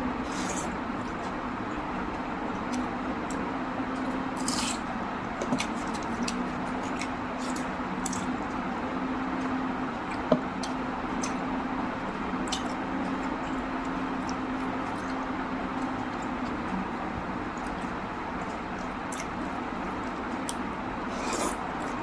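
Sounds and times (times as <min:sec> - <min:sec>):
wet chewing and mouth clicks: 0:05.4 - 0:08.6, 0:09.3 - 0:11.4, 0:12.4 - 0:16.8, 0:17.5 - 0:20.7.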